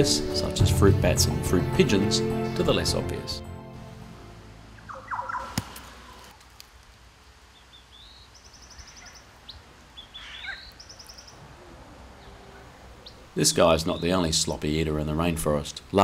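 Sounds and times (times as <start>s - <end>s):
faint forest background: 0.0s - 16.0s
birds chirping: 4.6s - 6.3s, 7.4s - 16.0s
bird trills: 4.8s - 6.3s, 7.6s - 11.4s.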